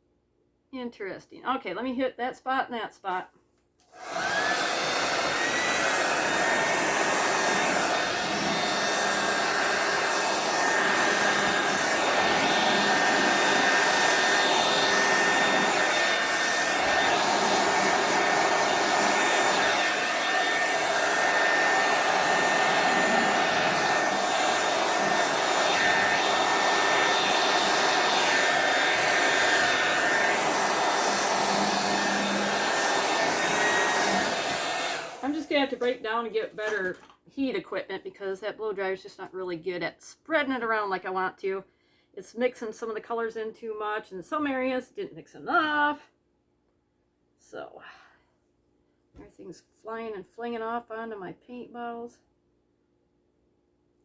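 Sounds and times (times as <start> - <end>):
hair dryer running: 3.9 - 36.0.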